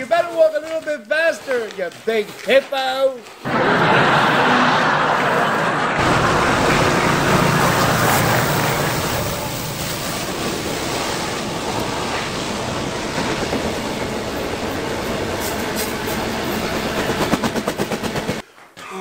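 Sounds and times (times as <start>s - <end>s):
freight train rumbling: 3.5s - 18.4s.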